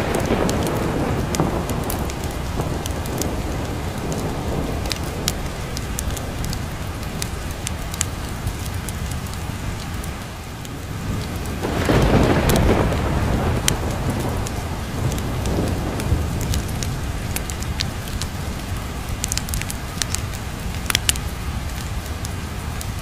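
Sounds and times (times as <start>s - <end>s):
rolling thunder: 0.0s - 9.4s, 10.6s - 20.1s
heavy rain: 0.0s - 23.0s
sharp ticks: 19.2s - 22.9s.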